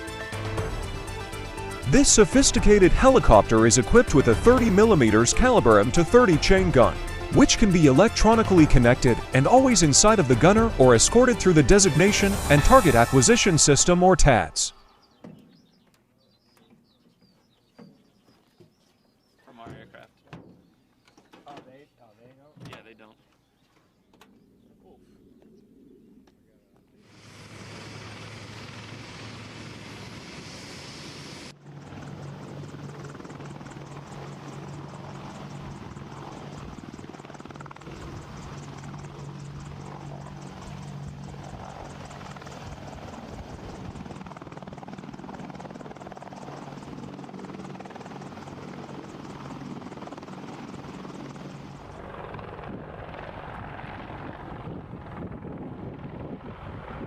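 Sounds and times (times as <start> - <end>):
helicopter rotor and turbine noise: 0.0 - 22.0, 24.0 - 57.0.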